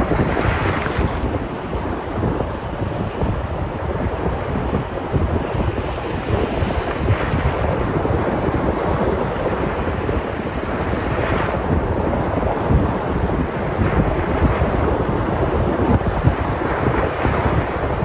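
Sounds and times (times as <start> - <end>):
waves breaking on shore: 0.0 - 18.0
wind buffeting microphone: 0.0 - 18.0.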